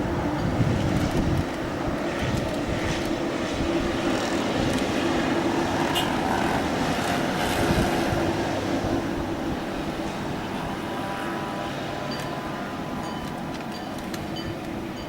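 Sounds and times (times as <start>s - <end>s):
jet engine rush: 0.0s - 15.0s.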